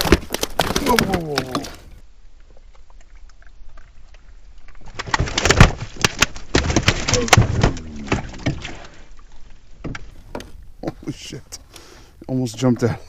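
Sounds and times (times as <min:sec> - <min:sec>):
fish thrashing and splashing: 0:00.0 - 0:01.9, 0:02.7 - 0:10.8.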